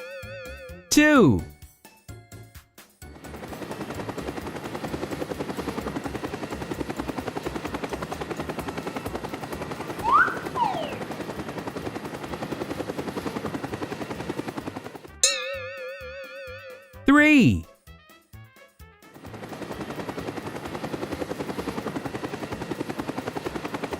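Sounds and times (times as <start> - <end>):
whistling glides: 10.0 - 11.1.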